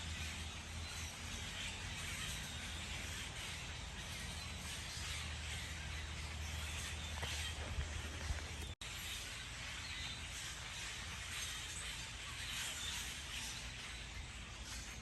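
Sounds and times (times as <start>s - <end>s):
faint harsh bird calls: 0.0s - 15.0s
steady background hiss: 8.6s - 15.0s.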